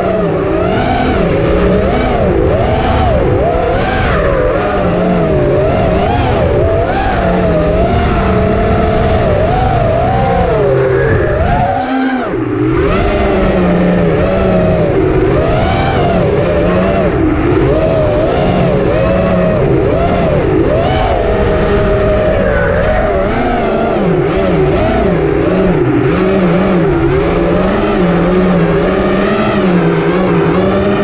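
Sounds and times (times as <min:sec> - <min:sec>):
quadcopter motors whining: 0:00.0 - 0:31.0.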